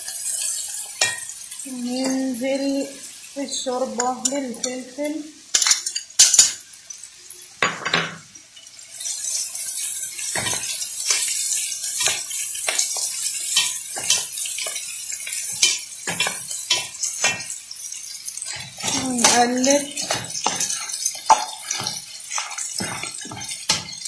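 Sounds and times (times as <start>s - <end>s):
vegetables sizzling in oil: 0.0s - 24.0s
wooden spoon scraping a pot: 18.5s - 24.0s.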